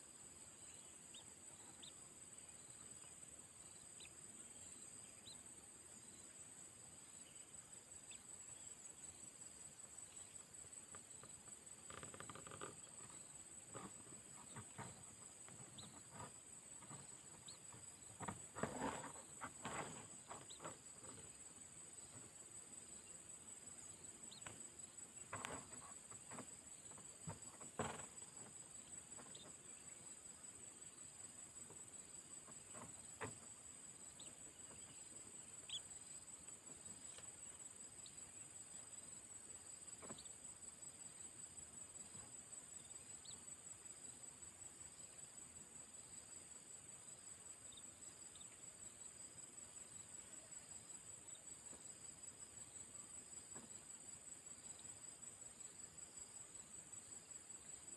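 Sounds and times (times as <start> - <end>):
high-pitched insect chorus: 0.0 - 57.9
soft rustles and knocks: 10.6 - 22.4, 24.2 - 29.9, 31.6 - 35.8, 39.9 - 40.3, 53.5 - 53.9.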